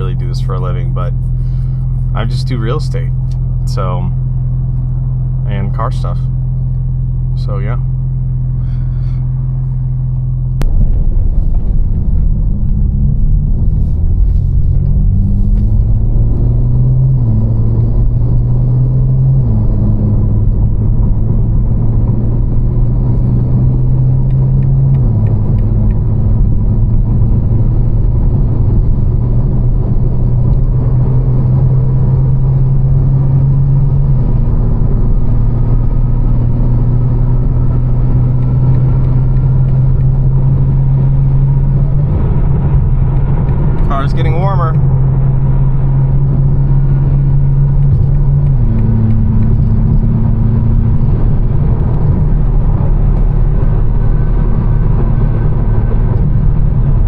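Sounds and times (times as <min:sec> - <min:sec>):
car engine idling: 0:00.0 - 0:16.5, 0:37.6 - 0:57.0.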